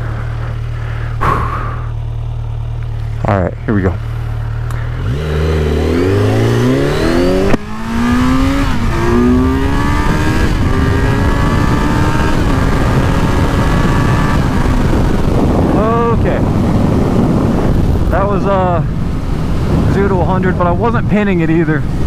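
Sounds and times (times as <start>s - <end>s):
motorcycle engine accelerating: 0.0s - 22.0s
wind noise on microphone: 5.1s - 22.0s.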